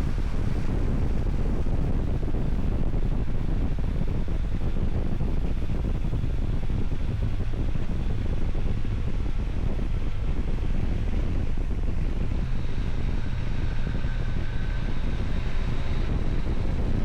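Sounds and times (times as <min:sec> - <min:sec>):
faint thin whine: 0:00.0 - 0:17.0
low engine rumble: 0:00.0 - 0:17.0
wind buffeting microphone: 0:00.0 - 0:17.0.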